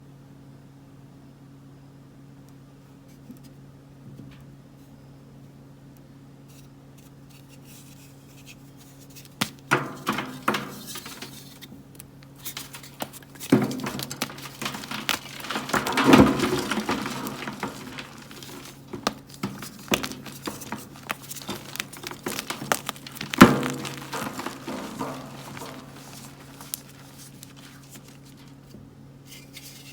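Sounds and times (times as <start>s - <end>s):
chalk crunching and crumbling: 8.4s - 28.7s
chalk blocks cracking: 9.2s - 28.6s.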